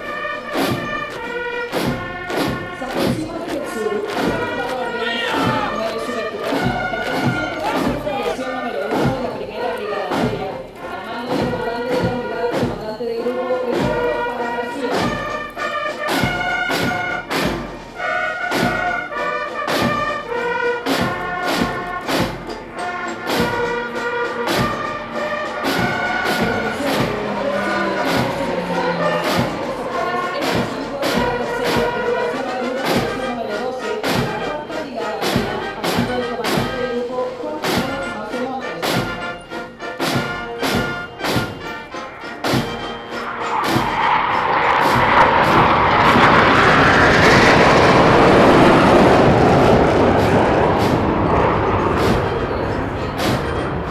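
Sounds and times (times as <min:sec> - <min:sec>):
brass band playing a march: 0:00.0 - 0:53.9
bass drum beat: 0:20.9 - 0:32.2.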